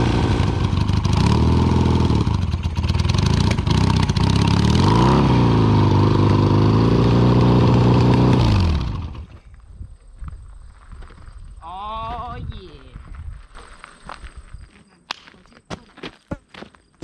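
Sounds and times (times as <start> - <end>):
motorcycle engine running and revving: 0.0 - 9.4.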